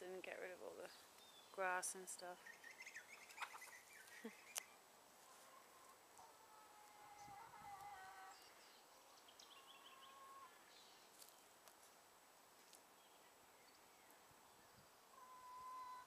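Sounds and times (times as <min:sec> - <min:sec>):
hens calling: 0:01.6 - 0:10.7, 0:15.1 - 0:16.0.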